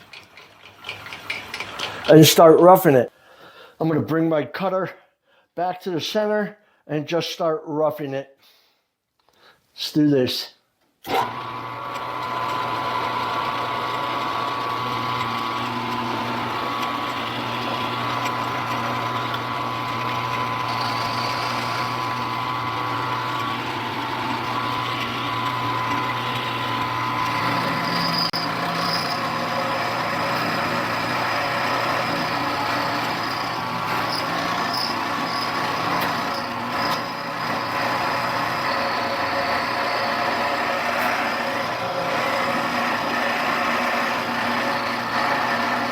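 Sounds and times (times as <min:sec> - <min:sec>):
end mill cutting metal: 0:11.1 - 0:45.9
milling machine motor whine: 0:11.1 - 0:45.9.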